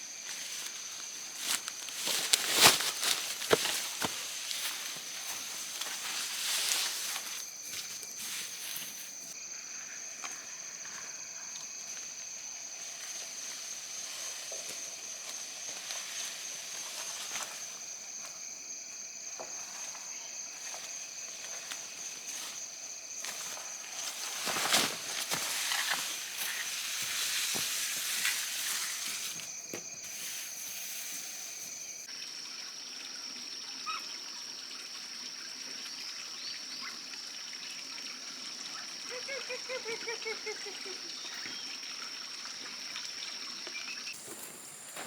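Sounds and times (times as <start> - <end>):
high insect buzz: 0.0 - 32.1, 44.0 - 45.0.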